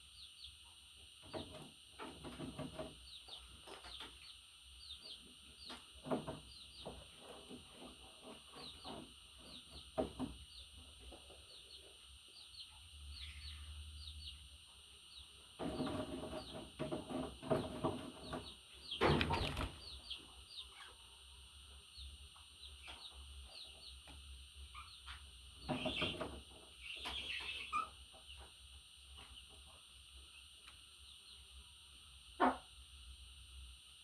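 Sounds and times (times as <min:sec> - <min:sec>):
budgerigars chirping and chattering: 0:24.7 - 0:28.5.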